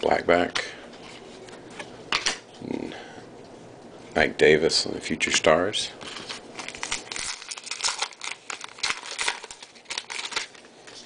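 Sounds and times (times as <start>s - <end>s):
trading cards crinkling and scraping: 0.9s - 2.4s, 6.0s - 11.0s.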